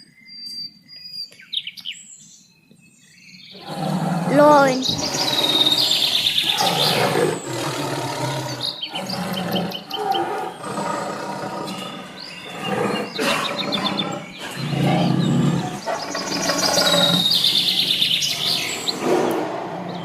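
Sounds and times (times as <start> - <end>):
birds chirping and trilling: 0.0 - 20.0
lion roaring: 3.6 - 20.0.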